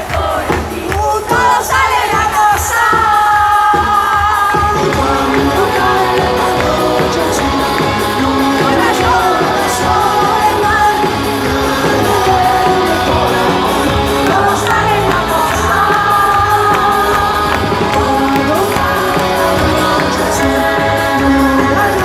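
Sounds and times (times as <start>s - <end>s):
audience shouting and singing along: 0.0s - 22.0s
live pop-rock band with singer: 0.0s - 22.0s.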